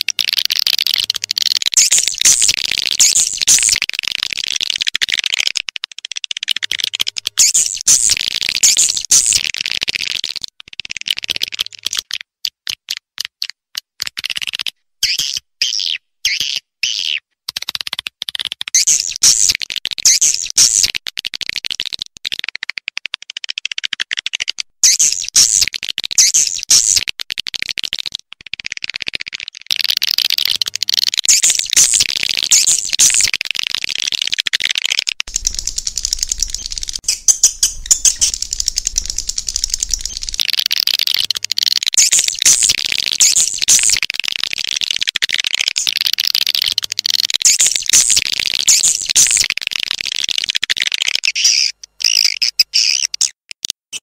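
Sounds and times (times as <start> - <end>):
sharp bird chirps: 0.1 - 3.8, 6.6 - 9.5, 18.8 - 19.5, 24.8 - 25.6, 31.2 - 33.3, 34.8 - 44.0, 47.4 - 49.5
swiftlets twittering: 0.1 - 3.8, 7.3 - 9.4, 30.5 - 45.0.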